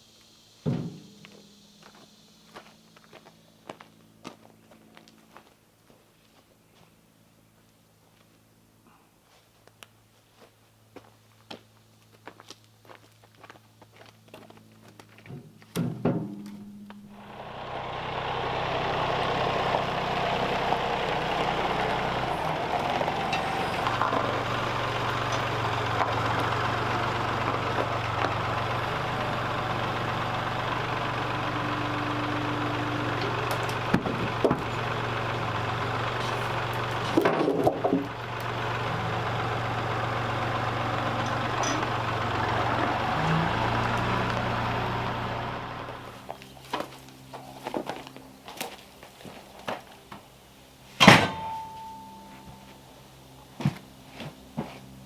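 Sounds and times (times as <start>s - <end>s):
power tool motor running: 17.1s - 46.2s.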